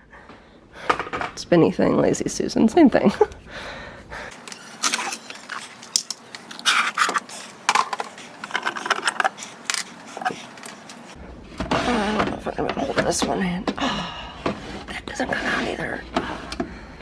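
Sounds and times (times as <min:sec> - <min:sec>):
cans scraping: 0:04.3 - 0:11.2
metal cans clinking: 0:04.3 - 0:11.2.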